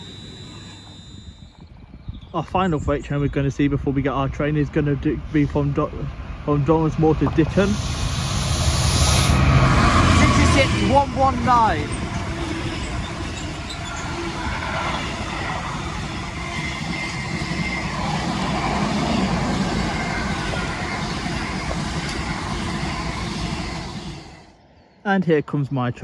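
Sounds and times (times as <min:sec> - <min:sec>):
wheels rumbling on rails: 0:02.7 - 0:24.6
freight train passing: 0:02.9 - 0:24.6.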